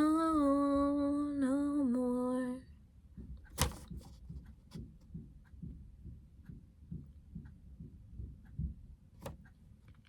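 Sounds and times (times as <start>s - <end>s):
soft low thuds: 3.0s - 9.6s.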